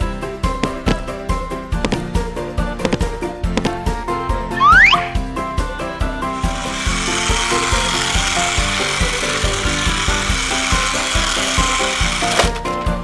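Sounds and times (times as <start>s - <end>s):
background music with steady beat: 0.0s - 13.0s
cartoon scrubbing noise: 4.6s - 5.2s.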